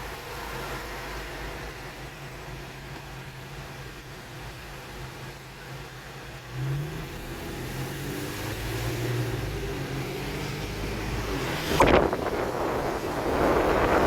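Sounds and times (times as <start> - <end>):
car engine accelerating: 0.0 - 14.0
loud rush of noise: 6.9 - 14.0.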